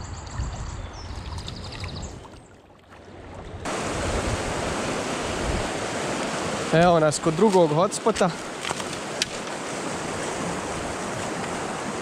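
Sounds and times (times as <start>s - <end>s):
small birds chirping: 0.0s - 2.5s
fast river rushing: 3.6s - 12.0s.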